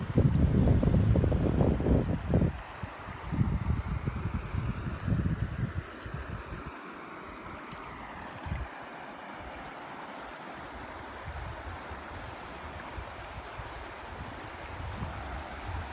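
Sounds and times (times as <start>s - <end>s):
wind buffeting microphone: 0.0s - 6.7s, 11.2s - 15.9s
river flowing: 0.0s - 15.9s.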